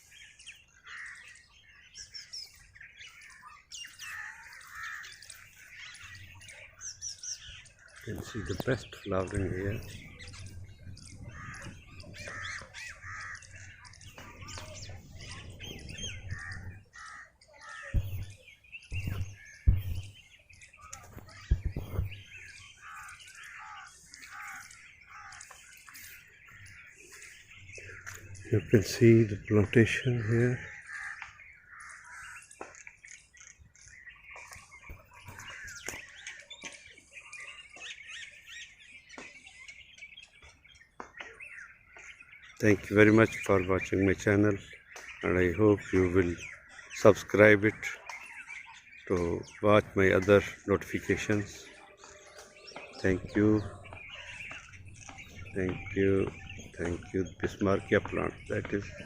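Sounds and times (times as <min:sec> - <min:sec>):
birds chirping: 0:00.0 - 0:59.0
harsh caws: 0:00.8 - 0:01.5, 0:03.9 - 0:05.9, 0:07.8 - 0:14.6, 0:15.9 - 0:18.4, 0:20.8 - 0:28.5, 0:29.9 - 0:32.8
sharp low thumps: 0:17.9 - 0:20.3, 0:21.0 - 0:22.5.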